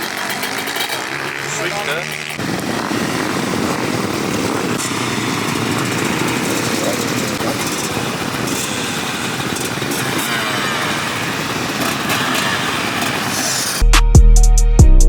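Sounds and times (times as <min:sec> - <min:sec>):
motocross bike engines revving: 0:00.0 - 0:13.8
steady rushing noise: 0:00.0 - 0:13.8.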